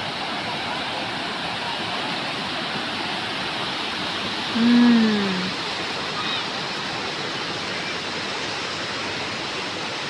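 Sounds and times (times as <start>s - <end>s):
waterfall rushing: 0.0s - 10.0s
person's voice: 4.6s - 5.5s.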